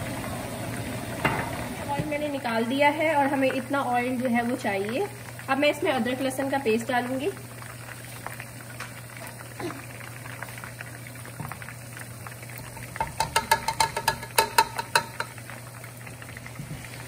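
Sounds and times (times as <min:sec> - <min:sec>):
chicken sizzling in oil: 0:00.0 - 0:17.0
plastic cup tapping on pot: 0:13.0 - 0:15.4.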